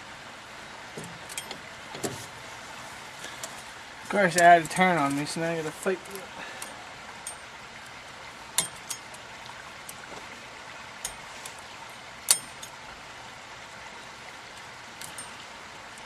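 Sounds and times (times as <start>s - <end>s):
steady hiss: 0.0s - 16.0s
hand tools clinking on metal: 1.0s - 2.1s, 4.2s - 7.5s, 8.6s - 9.2s, 12.3s - 12.8s, 15.0s - 15.5s.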